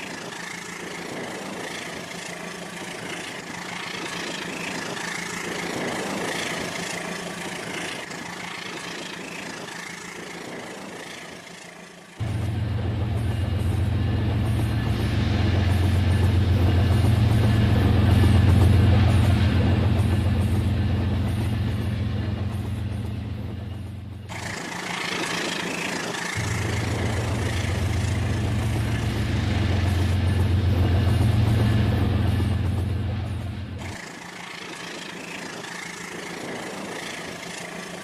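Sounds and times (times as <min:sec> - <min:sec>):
model electric train running: 0:00.0 - 0:38.0
steady low hum: 0:26.2 - 0:34.0.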